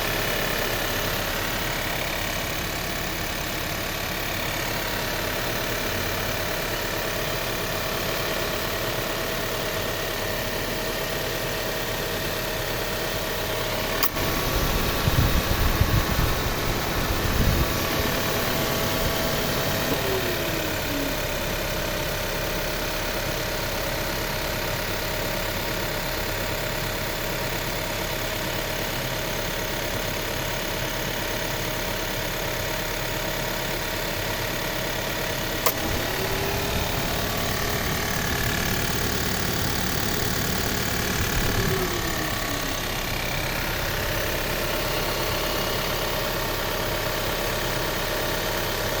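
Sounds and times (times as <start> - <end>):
car engine idling: 0.0 - 49.0
sharp click: 14.0 - 14.3, 35.6 - 39.0
tapping in engine bay: 35.4 - 43.1.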